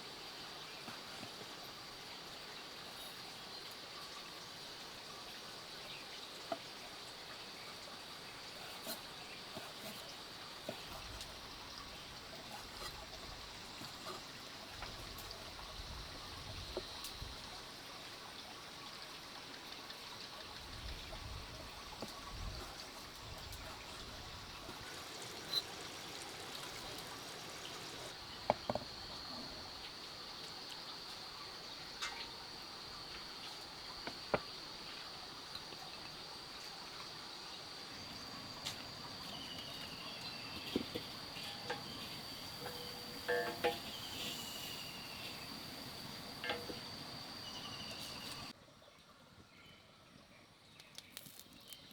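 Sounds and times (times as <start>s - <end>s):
trickling water hiss: 0.0s - 49.0s
high insect drone: 37.3s - 48.5s.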